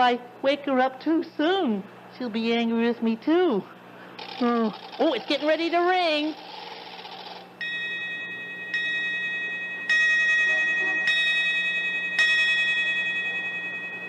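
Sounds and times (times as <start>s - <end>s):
chiming clock striking: 7.6s - 14.0s.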